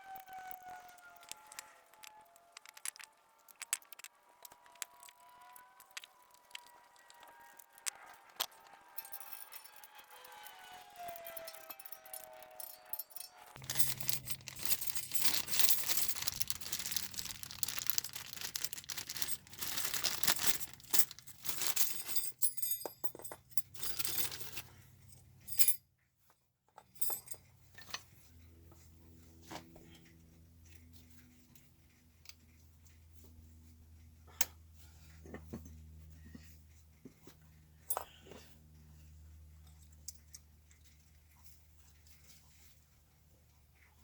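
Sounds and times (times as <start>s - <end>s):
scrubbing brake parts: 13.6s - 22.2s.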